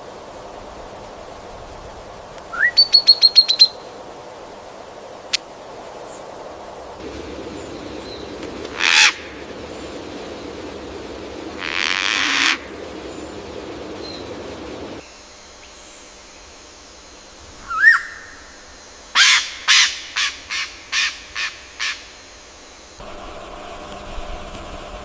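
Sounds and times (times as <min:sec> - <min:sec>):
rising bird call: 0:02.5 - 0:03.8, 0:07.0 - 0:15.0, 0:17.6 - 0:18.5
harsh bird calls: 0:07.0 - 0:15.0.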